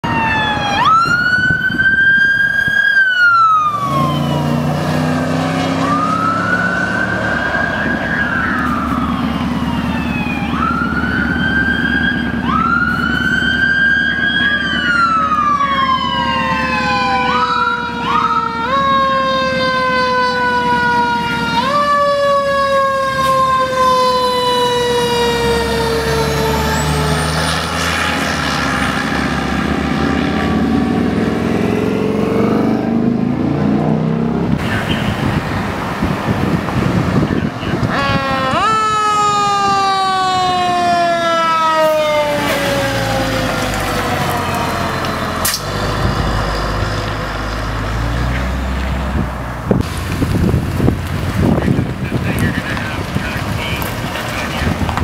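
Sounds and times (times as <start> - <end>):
fire truck sirens wailing: 0.0 - 55.0
truck engines running: 0.0 - 55.0.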